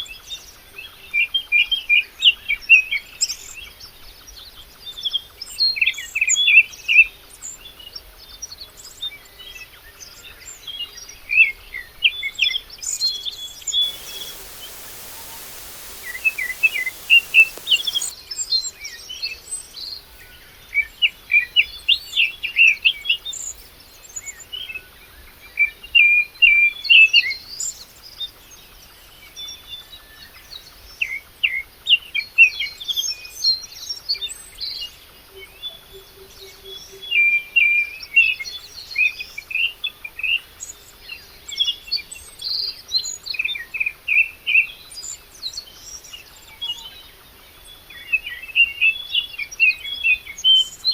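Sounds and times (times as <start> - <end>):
songbirds chirping: 13.8 - 18.1.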